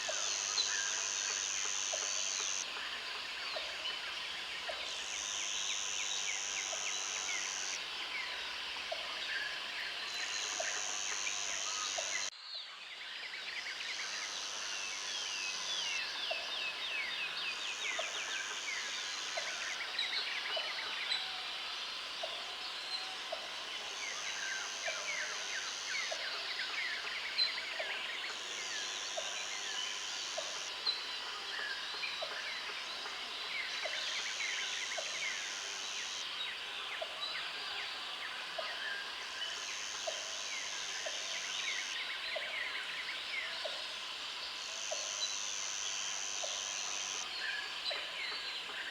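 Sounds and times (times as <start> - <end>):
high-pitched insect buzz: 0.1 - 2.6, 5.0 - 7.8, 10.2 - 12.3.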